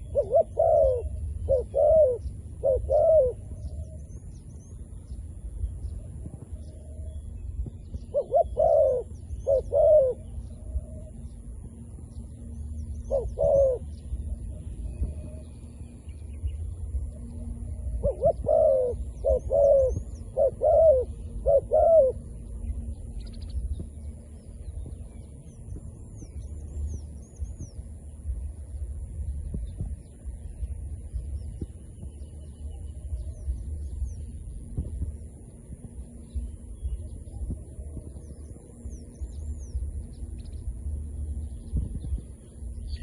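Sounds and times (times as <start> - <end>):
dove cooing: 0.0 - 4.1, 8.1 - 11.4, 12.7 - 15.5, 17.2 - 22.4
small birds chirping: 0.0 - 43.0
steady low rumble: 0.0 - 43.0.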